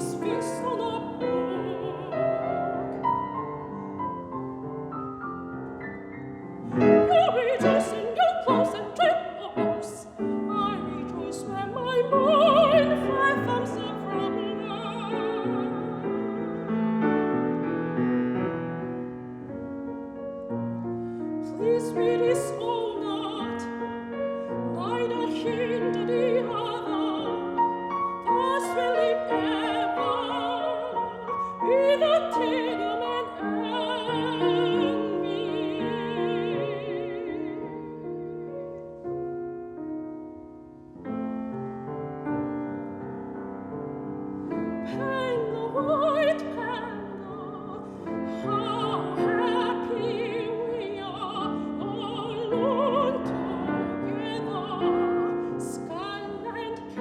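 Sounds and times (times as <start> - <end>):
soprano singing with vibrato: 0.0 - 3.0, 6.7 - 17.2, 21.4 - 38.5, 44.5 - 57.0
piano accompaniment: 0.0 - 57.0.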